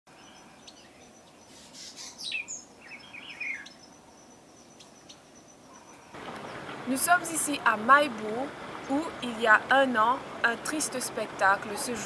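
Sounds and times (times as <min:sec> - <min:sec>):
birds whistling and chattering: 0:00.2 - 0:06.7.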